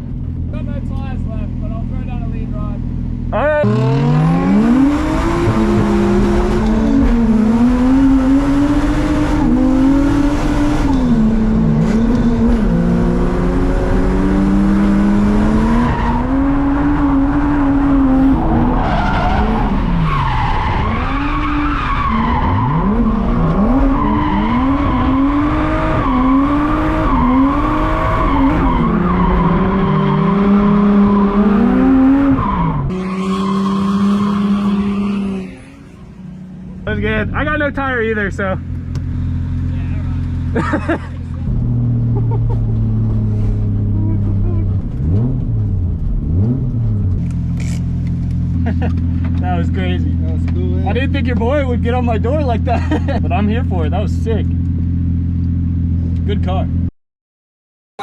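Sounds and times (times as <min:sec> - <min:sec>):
car engine revving hard: 0:03.6 - 0:36.2, 0:39.0 - 0:47.2
tyre squeal: 0:32.3 - 0:36.4.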